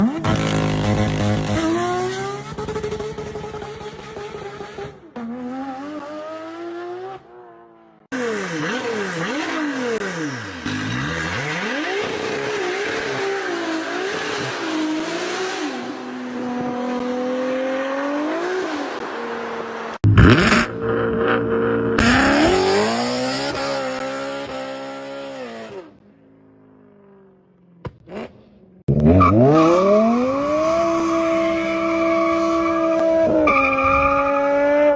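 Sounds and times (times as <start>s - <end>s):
car engines revving: 0.0s - 34.9s
cars passing by: 13.0s - 25.1s.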